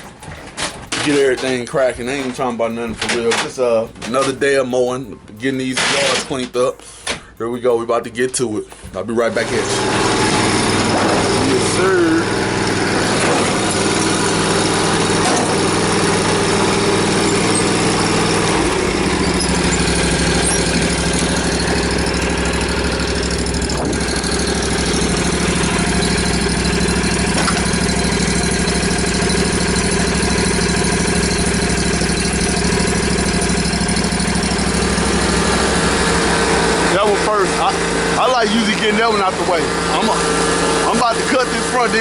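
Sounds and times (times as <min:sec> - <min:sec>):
lawn mower engine running: 0:00.0 - 0:06.8, 0:08.6 - 0:42.0
deep low drone: 0:09.4 - 0:37.9.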